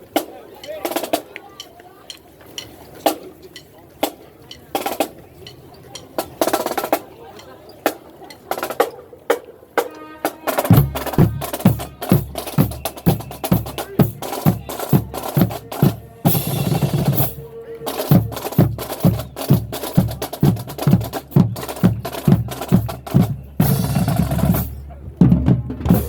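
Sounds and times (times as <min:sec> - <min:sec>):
snare drum rolls: 0:09.8 - 0:26.0
bass drums beating: 0:10.7 - 0:17.4, 0:18.1 - 0:26.0.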